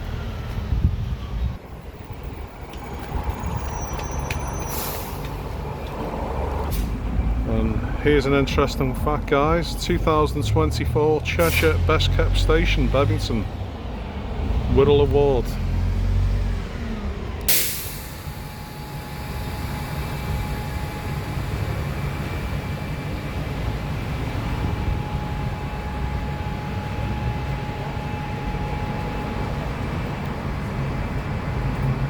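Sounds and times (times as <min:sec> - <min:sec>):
train rumble: 0:00.0 - 0:32.0
short sharp hiss: 0:17.5 - 0:18.3
thin steady whine: 0:17.5 - 0:31.9.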